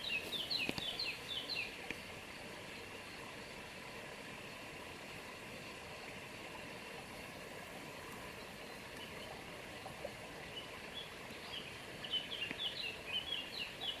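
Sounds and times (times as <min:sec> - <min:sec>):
songbird chirping: 0:00.0 - 0:01.8, 0:10.6 - 0:14.0
steady outdoor hiss: 0:00.0 - 0:14.0.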